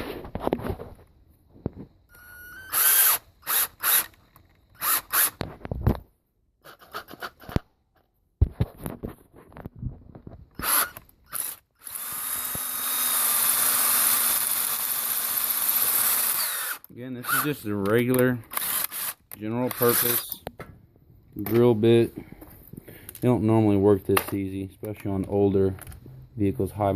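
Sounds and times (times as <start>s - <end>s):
cordless drill drilling into bolt: 2.1s - 4.2s, 4.8s - 5.4s, 10.6s - 17.7s, 18.5s - 20.4s.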